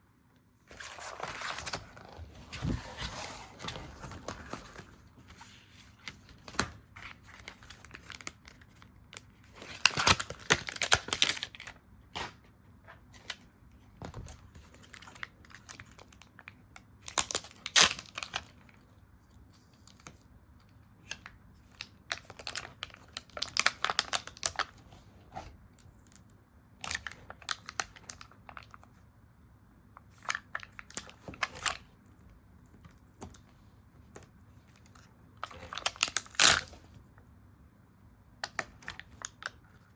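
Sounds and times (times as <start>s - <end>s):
paper crinkling: 0.7s - 12.4s.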